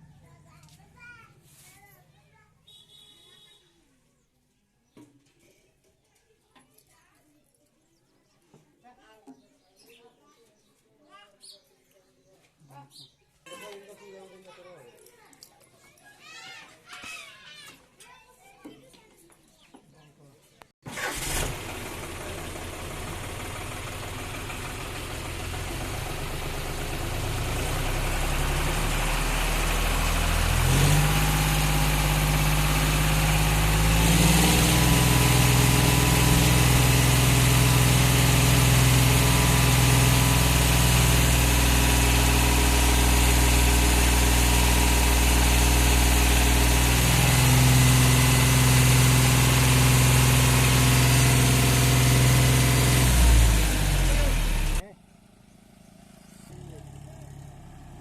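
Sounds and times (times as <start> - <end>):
tractor diesel engine running: 20.9 - 58.0.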